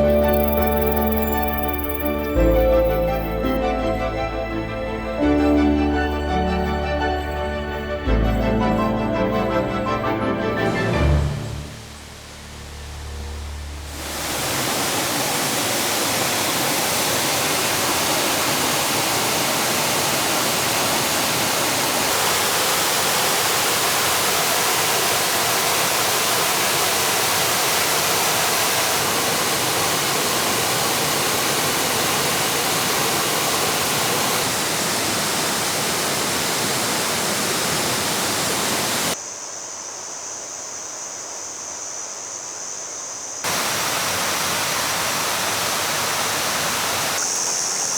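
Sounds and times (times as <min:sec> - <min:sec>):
waterfall rushing: 0:08.8 - 0:39.2, 0:43.5 - 0:47.4.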